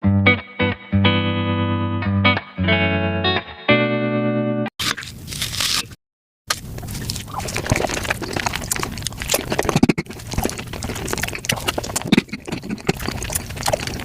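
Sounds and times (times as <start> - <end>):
sped-up chewing and slurping: 6.5 - 14.0.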